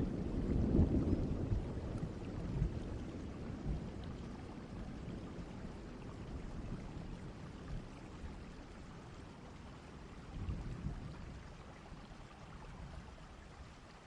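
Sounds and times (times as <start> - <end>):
low rumble of thunder: 0.0 - 13.8
steady rain: 0.0 - 14.0.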